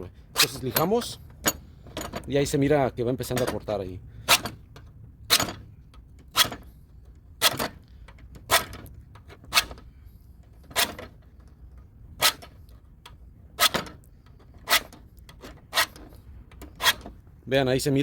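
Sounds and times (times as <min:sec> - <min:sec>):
hand file rasping on metal: 0:16.7 - 0:17.1.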